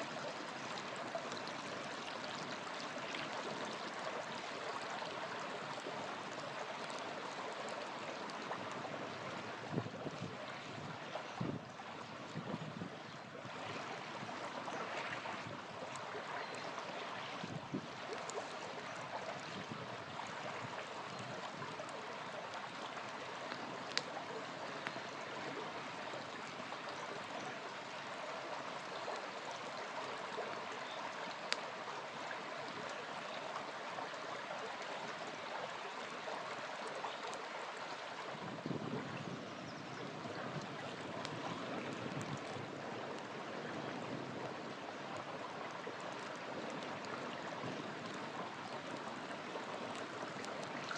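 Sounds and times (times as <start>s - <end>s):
river flowing: 0.0s - 50.9s
campfire crackling and popping: 15.4s - 26.6s, 40.6s - 43.4s, 44.4s - 50.9s.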